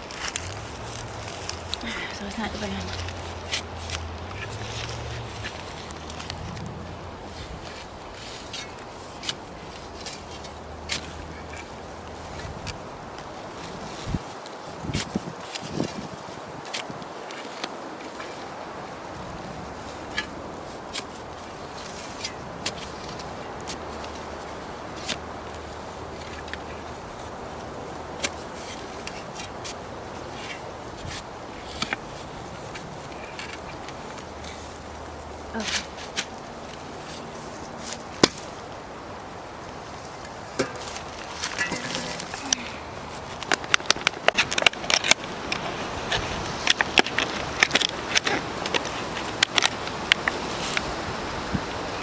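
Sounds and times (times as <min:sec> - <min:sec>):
wind hiss: 0:00.0 - 0:52.0
wind on microphone: 0:12.2 - 0:17.2, 0:50.3 - 0:52.0
sharp clicks and scrapes: 0:40.6 - 0:50.9.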